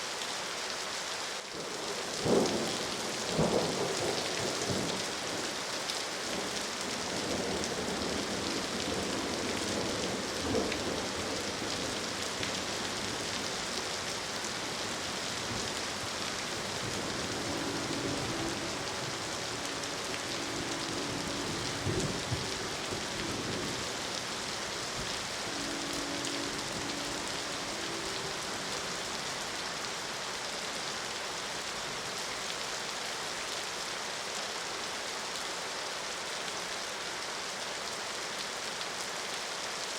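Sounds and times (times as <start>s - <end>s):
steady rain: 0.0s - 39.9s
distant train horn: 7.0s - 30.9s
low thunder rumble: 14.6s - 29.3s.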